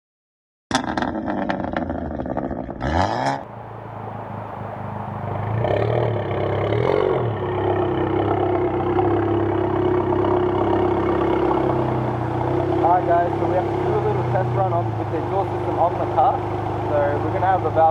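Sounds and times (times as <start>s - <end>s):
car engine revving and idling: 0.9s - 17.9s.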